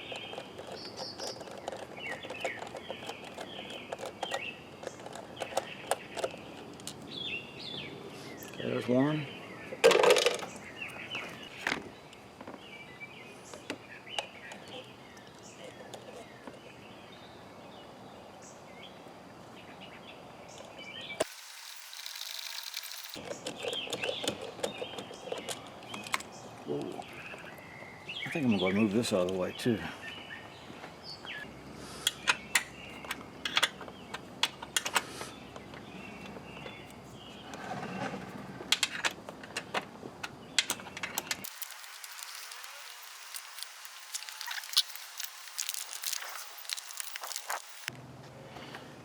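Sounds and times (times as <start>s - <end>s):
birds chirping: 0.0s - 37.7s, 39.6s - 47.9s
hand tools and metal parts clinking: 21.2s - 26.2s, 40.7s - 47.9s.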